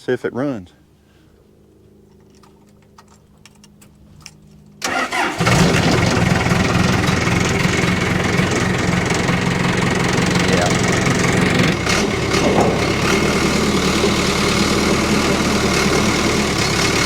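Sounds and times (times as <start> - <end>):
diesel engine starting and running: 4.8 - 17.0.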